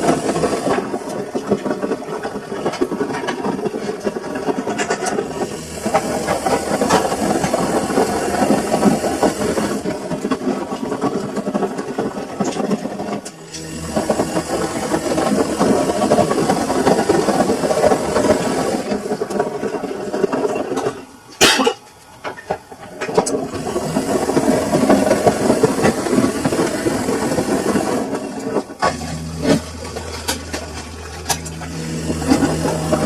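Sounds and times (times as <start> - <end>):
washing machine drum churning: 0.0 - 33.0
steady low hum: 28.8 - 33.0.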